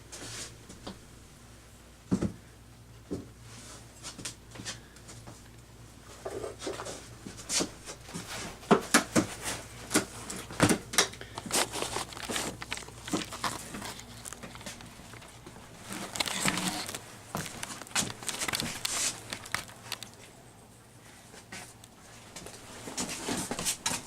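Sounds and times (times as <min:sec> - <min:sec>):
knocks clicks and scrapes of hive parts: 0:06.2 - 0:20.3.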